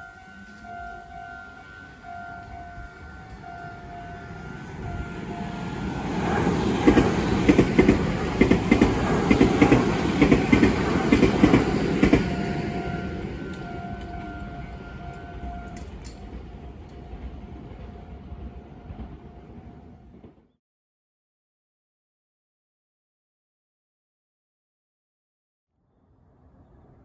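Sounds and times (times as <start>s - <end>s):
crossing alarm dinging: 0.0s - 16.3s
train wheels clacking over rail joints: 6.8s - 12.6s.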